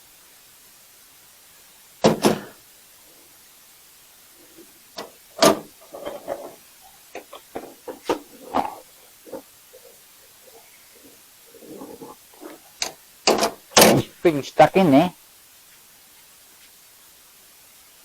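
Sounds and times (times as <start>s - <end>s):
knocks clunks and rattles: 2.0s - 2.6s, 4.5s - 14.2s.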